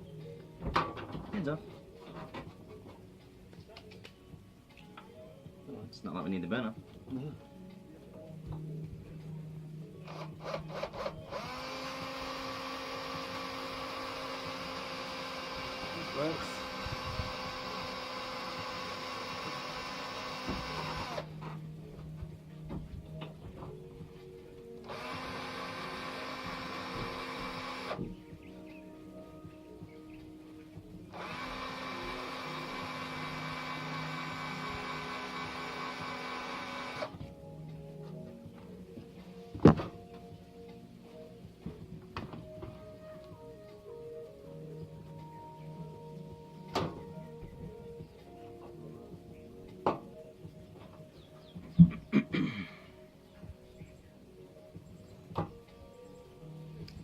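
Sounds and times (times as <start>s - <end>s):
power tool motor running: 10.1s - 21.5s, 24.8s - 28.1s, 31.1s - 37.1s.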